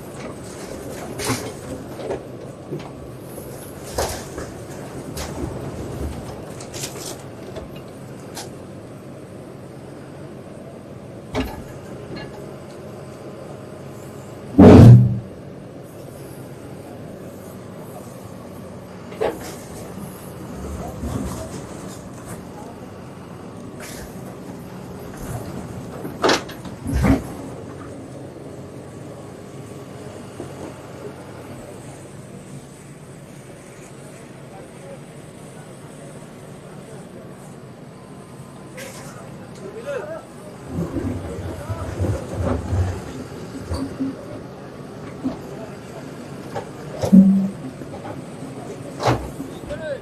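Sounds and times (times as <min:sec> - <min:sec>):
heavy machine engine running: 0:00.0 - 0:50.0
loud bangs: 0:14.6 - 0:15.3.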